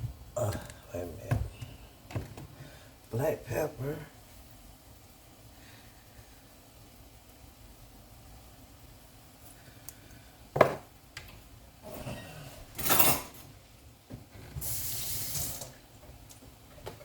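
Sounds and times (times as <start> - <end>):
short hissing rushes: 14.6 - 15.7.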